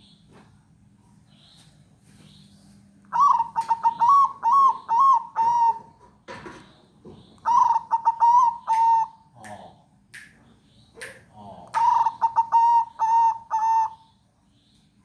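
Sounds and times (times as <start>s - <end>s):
dove cooing: 3.1s - 9.8s, 11.4s - 14.1s.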